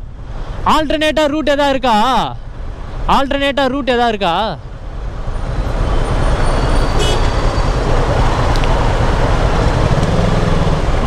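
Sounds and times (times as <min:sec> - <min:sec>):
heavy road traffic roar: 0:00.0 - 0:11.0
low engine hum: 0:06.0 - 0:11.0
short high horn toot: 0:06.9 - 0:07.5.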